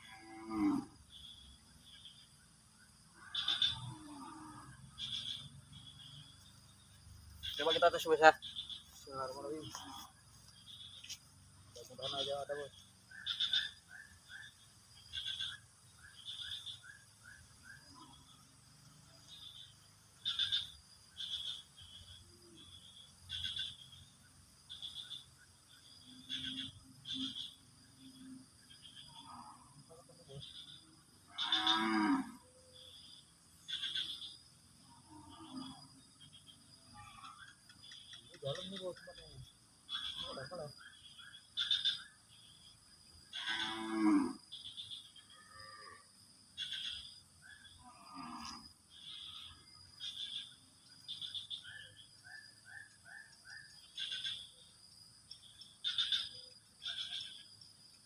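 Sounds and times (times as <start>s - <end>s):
low moo-like animal call: 0.0s - 1.0s, 3.1s - 5.2s, 28.9s - 30.4s, 31.2s - 32.5s, 34.8s - 36.0s, 36.8s - 37.4s, 43.3s - 44.5s, 45.2s - 46.2s, 47.8s - 48.7s
frogs croaking: 0.0s - 58.0s.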